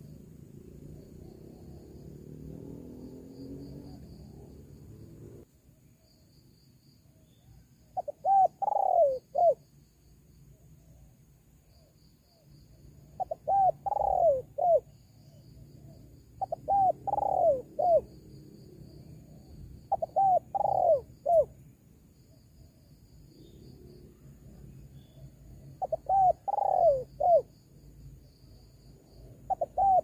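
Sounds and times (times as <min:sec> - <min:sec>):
dove cooing: 0:08.0 - 0:09.6, 0:13.1 - 0:14.9, 0:16.4 - 0:18.1, 0:19.9 - 0:21.6, 0:25.8 - 0:27.5, 0:29.4 - 0:30.0.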